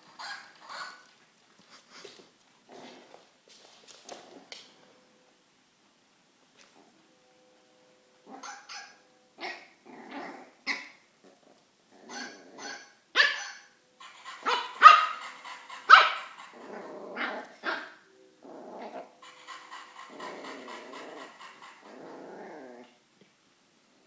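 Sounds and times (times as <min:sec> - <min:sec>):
puppy barking: 0:00.2 - 0:01.0, 0:08.3 - 0:09.7, 0:12.1 - 0:18.0.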